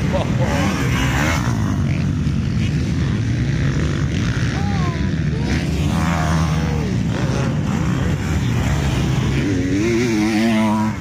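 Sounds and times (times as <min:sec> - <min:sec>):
motocross bikes revving: 0:00.0 - 0:11.0
motorbike revving loudly: 0:00.0 - 0:11.0.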